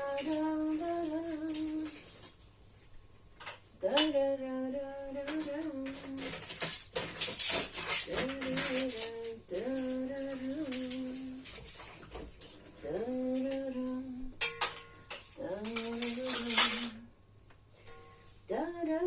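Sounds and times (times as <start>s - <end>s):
dishes and cutlery clattering: 5.2s - 12.5s, 14.4s - 17.0s, 17.8s - 18.3s.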